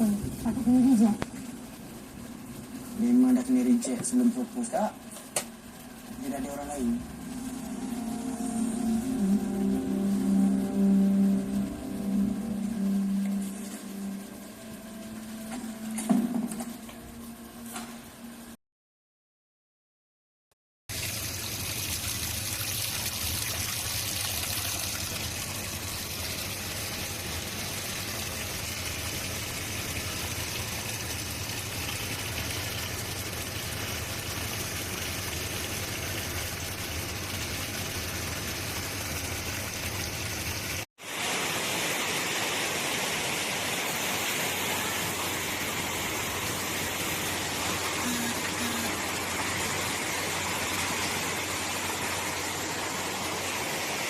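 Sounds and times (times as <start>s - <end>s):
water rushing into washing machine: 20.9s - 54.0s.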